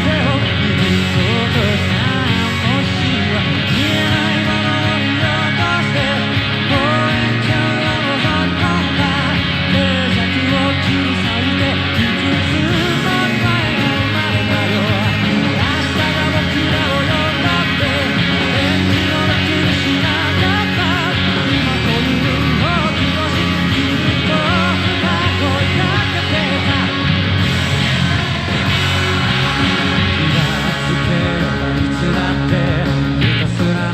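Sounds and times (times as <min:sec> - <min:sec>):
electric guitar playing: 0:00.0 - 0:33.9
live rock recording: 0:00.0 - 0:33.9
person singing: 0:00.0 - 0:33.9.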